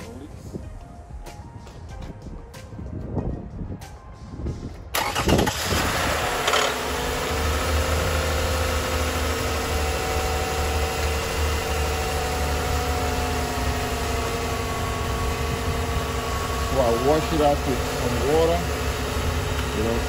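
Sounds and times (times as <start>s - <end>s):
car engine starting and idling: 4.9s - 20.0s.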